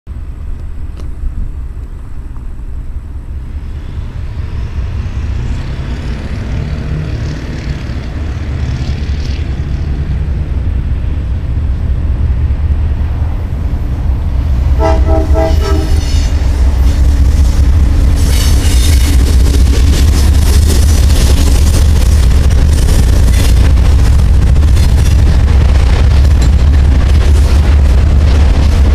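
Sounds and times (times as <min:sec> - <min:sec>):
diesel locomotives rumbling: 0:00.1 - 0:28.9
locomotive horn blasts: 0:14.8 - 0:16.3.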